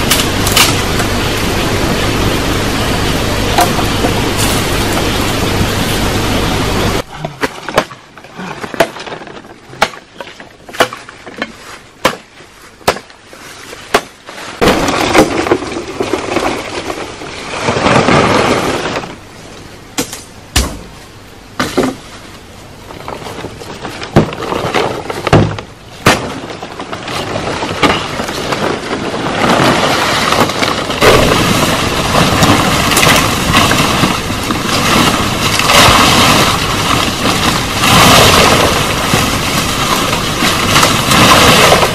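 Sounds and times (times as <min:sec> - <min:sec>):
sharp knocks and cracks: 0:00.0 - 0:01.1, 0:07.2 - 0:13.2, 0:20.0 - 0:21.0, 0:23.0 - 0:41.9
steady hiss: 0:00.0 - 0:07.1.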